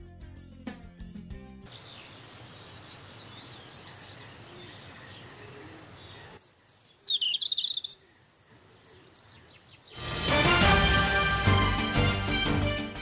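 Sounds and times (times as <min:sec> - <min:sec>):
outdoor hiss: 0:01.7 - 0:07.0
birds chirping and singing: 0:01.7 - 0:10.0.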